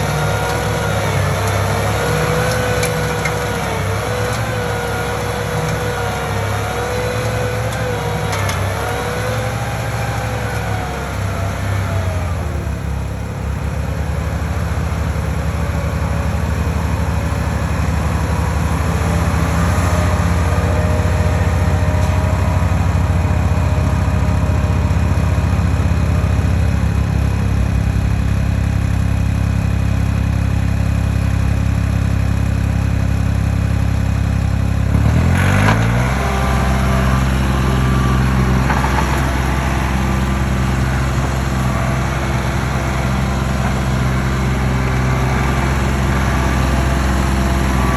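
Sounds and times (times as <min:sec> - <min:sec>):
heavy machinery engine revving: 0:00.0 - 0:47.9.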